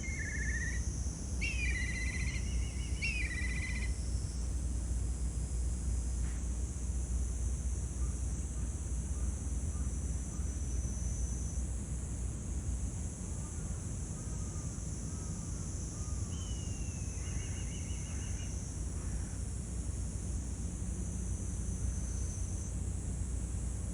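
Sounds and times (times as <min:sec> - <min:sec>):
high insect hiss: 0:00.0 - 0:23.9
birds chirping: 0:01.4 - 0:03.9.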